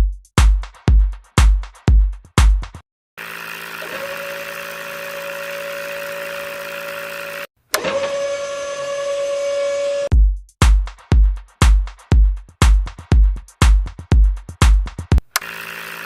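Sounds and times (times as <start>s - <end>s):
small electric motor whining: 3.2s - 10.1s, 15.2s - 16.0s.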